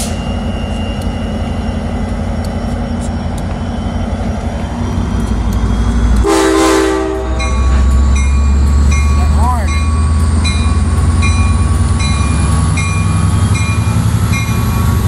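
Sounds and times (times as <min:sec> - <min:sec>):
diesel locomotive engine: 0:00.0 - 0:15.0
train horn blast: 0:06.2 - 0:07.8.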